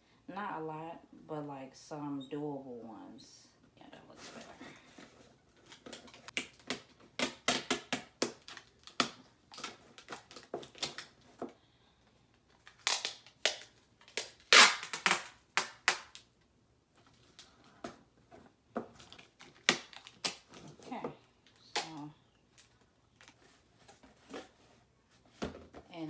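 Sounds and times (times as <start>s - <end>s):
packing tape tearing: 5.7s - 11.2s, 12.6s - 16.3s, 19.0s - 20.8s.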